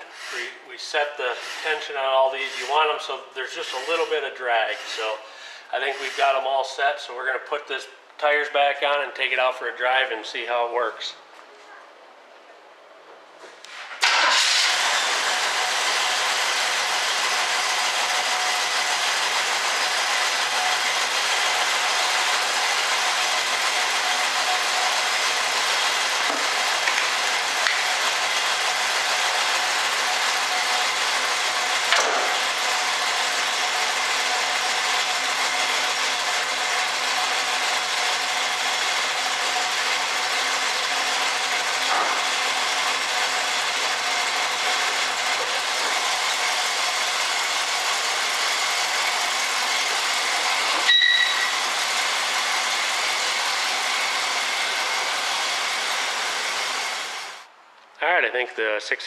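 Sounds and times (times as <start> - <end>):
car engine and road noise: 14.0 - 57.6.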